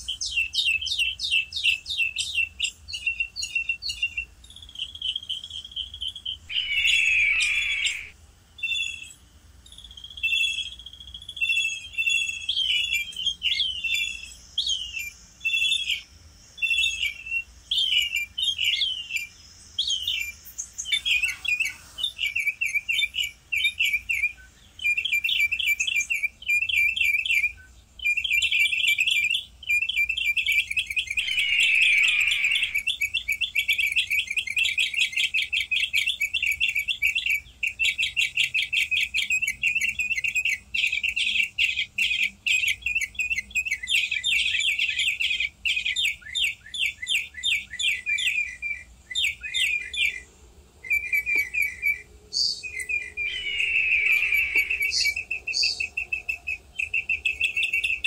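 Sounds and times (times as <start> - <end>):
small birds chirping: 0.0 - 58.0
loud falling bird call: 6.5 - 8.2, 31.1 - 32.9, 53.1 - 55.3.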